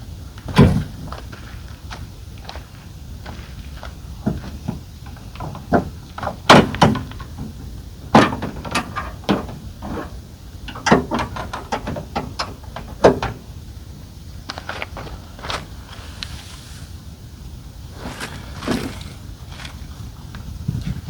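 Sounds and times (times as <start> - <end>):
gear clunking and rattling: 0.3 - 2.6, 3.2 - 16.0, 18.0 - 21.0
sharp knocks: 4.2 - 13.4.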